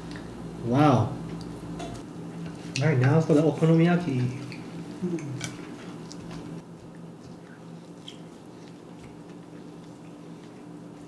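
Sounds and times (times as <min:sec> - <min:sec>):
low steady hum: 0:00.0 - 0:11.0
chewing food: 0:02.4 - 0:11.0.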